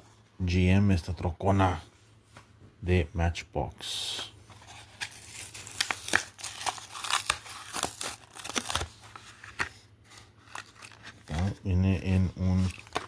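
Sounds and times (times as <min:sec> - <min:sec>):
plastic packaging torn open: 0:04.9 - 0:09.0, 0:12.6 - 0:13.0.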